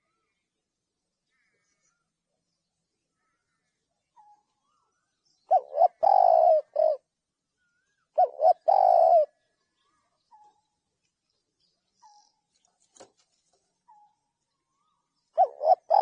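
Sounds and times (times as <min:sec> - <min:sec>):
dove cooing: 0:05.5 - 0:07.1, 0:08.1 - 0:09.4, 0:15.4 - 0:16.0.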